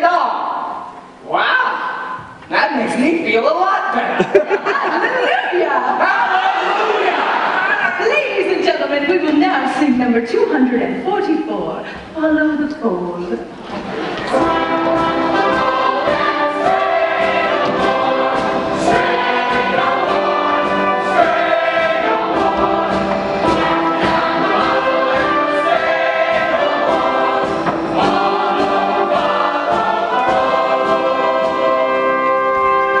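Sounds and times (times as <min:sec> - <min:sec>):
chorus singing a hymn: 0:05.9 - 0:07.7, 0:13.9 - 0:33.0
orchestral accompaniment: 0:13.8 - 0:33.0.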